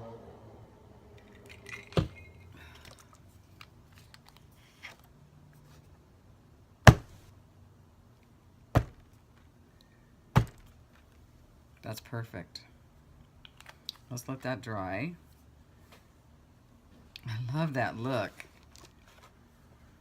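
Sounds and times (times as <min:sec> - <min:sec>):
paper rustling: 0:18.3 - 0:19.4.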